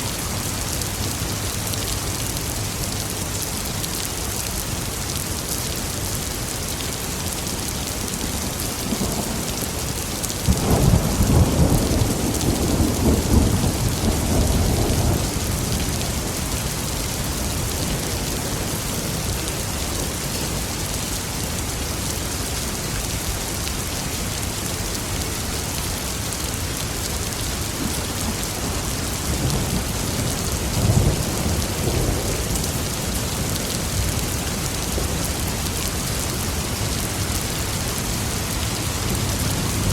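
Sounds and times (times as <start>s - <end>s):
heavy rain hissing: 0.0s - 39.9s
thunder rumbling: 10.4s - 16.9s.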